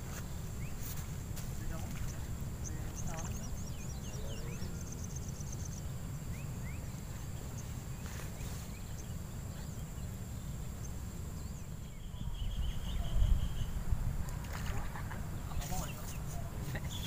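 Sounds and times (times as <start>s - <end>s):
bird chirps: 1.6s - 13.8s, 15.4s - 17.0s
bird trill: 10.8s - 13.8s.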